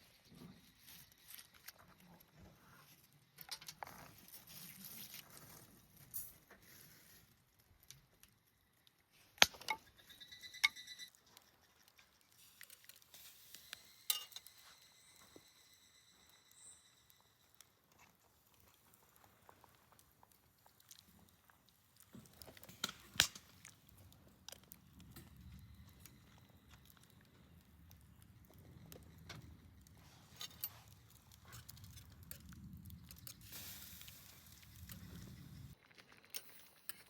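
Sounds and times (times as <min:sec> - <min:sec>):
sharp metallic clinks: 0:13.5 - 0:17.9.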